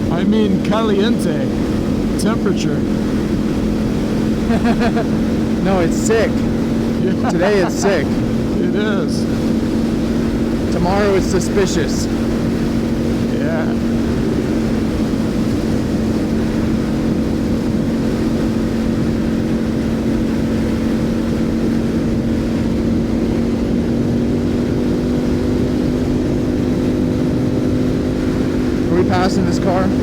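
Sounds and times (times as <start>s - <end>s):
motorcycle engine drone: 0.0s - 7.3s, 8.0s - 30.0s
wind rush on microphone: 12.0s - 30.0s.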